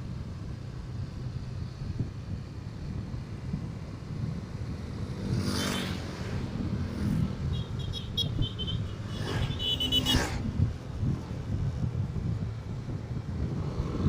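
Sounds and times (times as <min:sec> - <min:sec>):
vehicles swishing past: 0:02.9 - 0:14.0.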